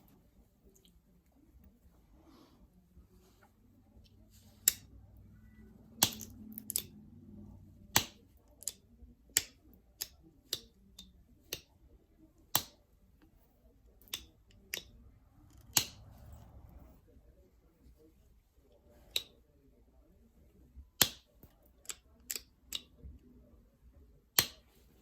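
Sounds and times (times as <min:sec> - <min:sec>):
stone knapping clicks: 0:04.6 - 0:04.9, 0:06.0 - 0:06.9, 0:07.9 - 0:11.7, 0:12.5 - 0:12.8, 0:14.0 - 0:14.9, 0:15.5 - 0:16.4, 0:21.0 - 0:22.9, 0:24.4 - 0:24.6.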